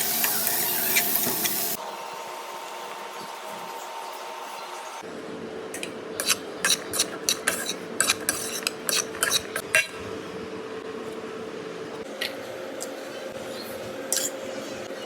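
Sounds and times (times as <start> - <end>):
metal utensil scraping a pan: 6.2 - 9.9, 14.1 - 14.4.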